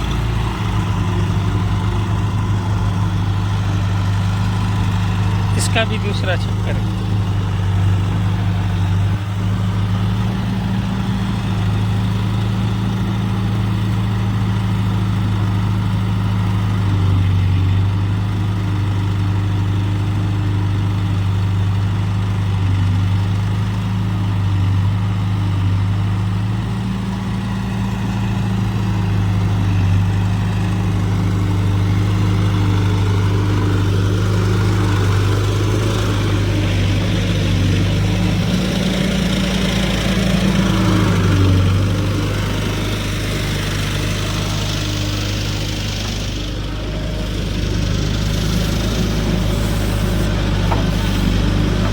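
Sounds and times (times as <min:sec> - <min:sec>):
diesel engine droning: 0:00.0 - 0:51.9.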